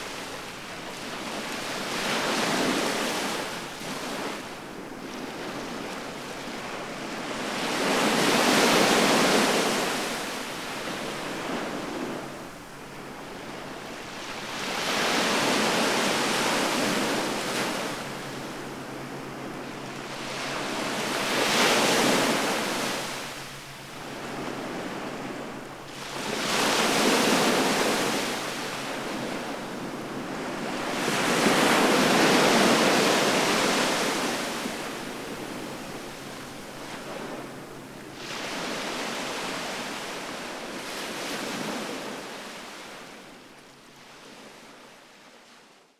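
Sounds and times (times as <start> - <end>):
sea waves breaking on shore: 6.5 - 43.2.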